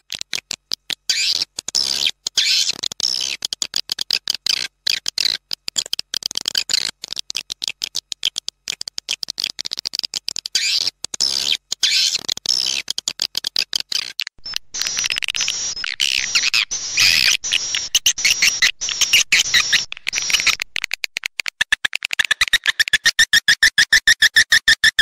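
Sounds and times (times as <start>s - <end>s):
recorded swiftlet chirping: 1.0s - 3.4s, 9.3s - 12.9s, 13.9s - 21.2s.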